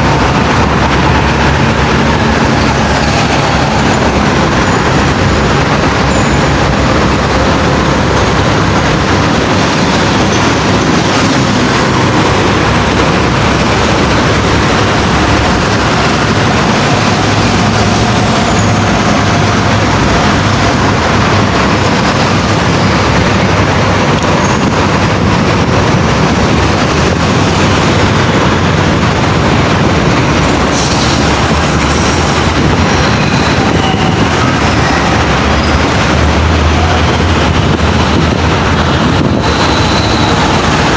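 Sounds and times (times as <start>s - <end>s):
heavy trucks running: 0.0s - 40.9s
rumble of road traffic: 0.0s - 40.9s.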